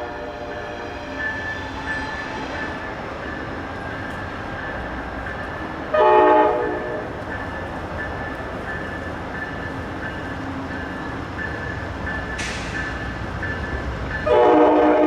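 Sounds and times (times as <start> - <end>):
train rumbling on rails: 0.0 - 15.0
locomotive horn blast: 5.9 - 7.1, 14.2 - 15.0.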